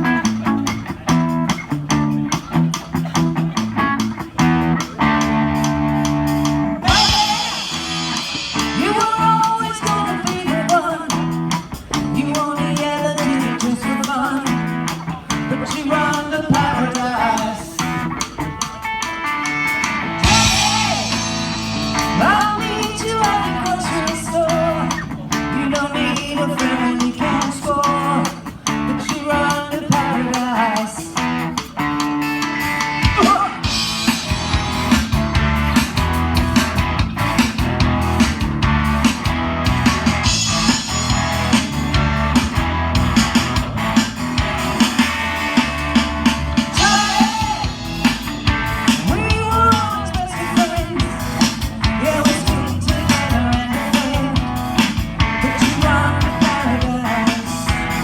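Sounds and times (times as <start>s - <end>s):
bass guitar: 0.0s - 58.0s
drum kit: 0.0s - 58.0s
electric guitar: 0.0s - 58.0s
lead vocal singing: 6.8s - 18.1s, 20.2s - 31.5s, 33.0s - 33.9s, 46.6s - 58.0s.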